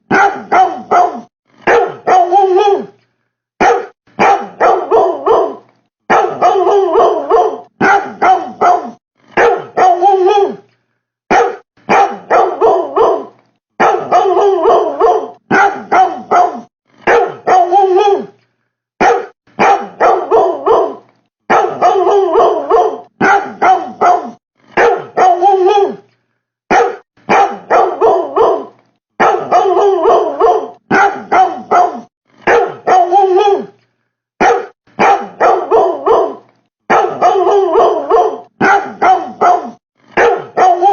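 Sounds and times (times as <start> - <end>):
dog-like barking: 0.1 - 2.9, 3.6 - 10.6, 11.3 - 18.3, 19.0 - 26.0, 26.7 - 33.7, 34.4 - 40.9.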